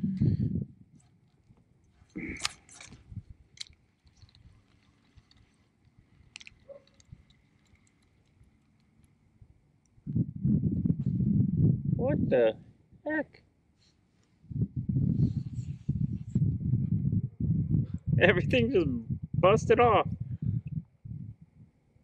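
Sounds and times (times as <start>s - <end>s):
sharp rustles and clicks: 1.0s - 9.2s
fishing gear handling noise: 1.0s - 9.9s.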